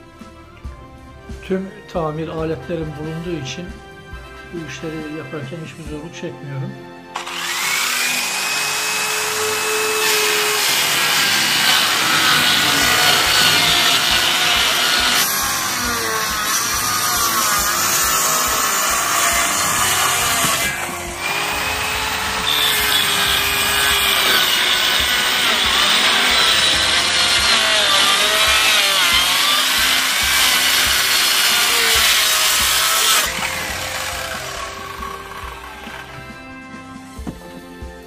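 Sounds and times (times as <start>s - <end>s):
saw cutting wood: 7.2s - 37.3s.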